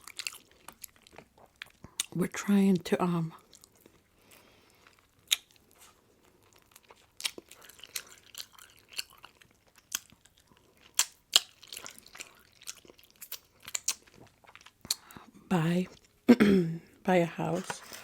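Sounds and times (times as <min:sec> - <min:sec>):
chewing with wet mouth clicks: 0:00.0 - 0:02.2, 0:03.4 - 0:15.2.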